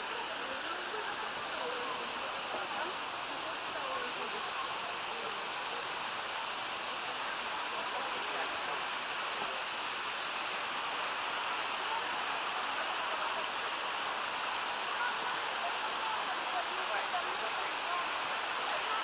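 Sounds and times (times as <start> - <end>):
stream rushing over waterfalls: 0.0 - 19.0.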